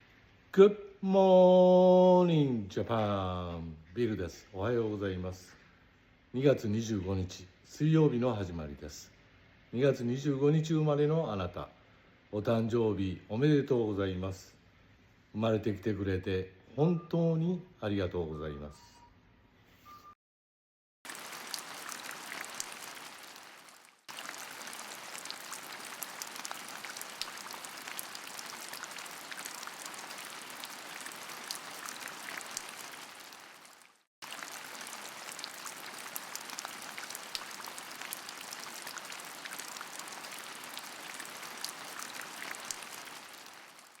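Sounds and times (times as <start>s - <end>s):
raindrops ticking: 21.1s - 44.0s
steady rainfall: 21.1s - 44.0s.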